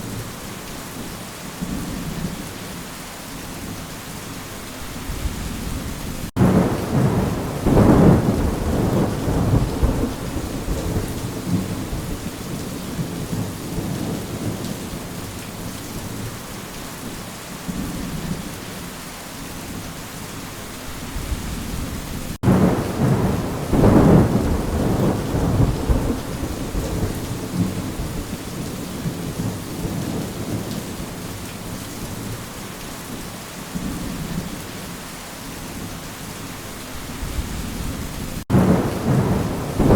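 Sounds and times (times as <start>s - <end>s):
steady rain: 0.0s - 39.9s
thunder rolling: 5.1s - 14.6s, 21.2s - 28.4s, 37.2s - 39.9s.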